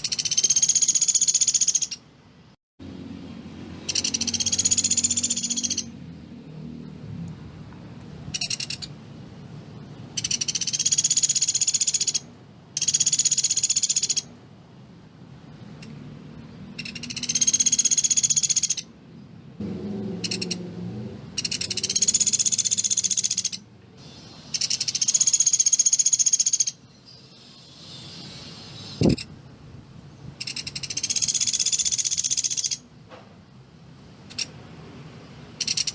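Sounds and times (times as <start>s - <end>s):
bird high-pitched trills: 0.0s - 2.0s, 3.8s - 5.9s, 8.4s - 8.9s, 10.2s - 14.3s, 16.8s - 18.9s, 21.4s - 29.3s, 30.4s - 32.8s, 35.6s - 35.9s.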